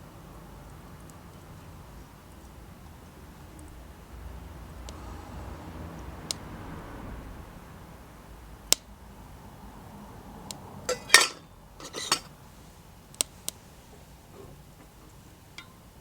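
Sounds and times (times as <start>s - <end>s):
metal cookware clattering scrapes: 10.9s - 12.3s
metal cookware clinking: 10.9s - 12.3s, 15.6s - 15.8s.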